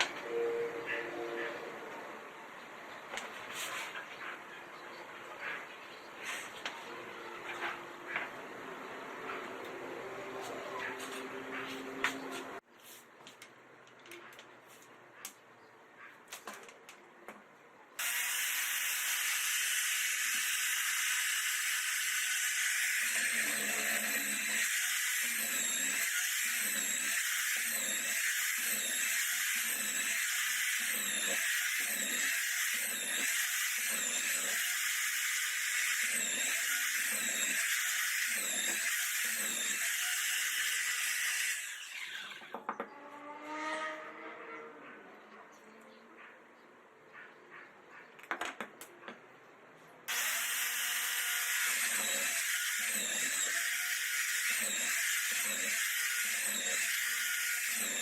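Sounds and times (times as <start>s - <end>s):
electric drill whining: 18.0s - 42.6s, 50.1s - 58.0s.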